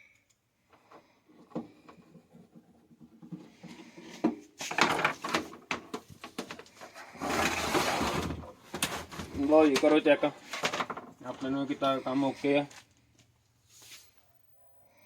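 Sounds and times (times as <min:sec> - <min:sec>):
clicks and knocks from handling parts: 0:08.7 - 0:11.5.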